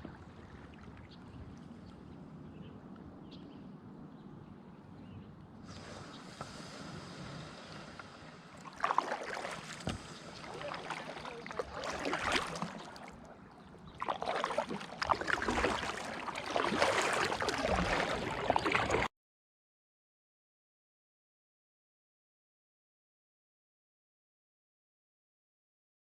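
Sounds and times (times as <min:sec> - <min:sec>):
paddle splashing water: 0:00.0 - 0:02.2, 0:05.6 - 0:19.1.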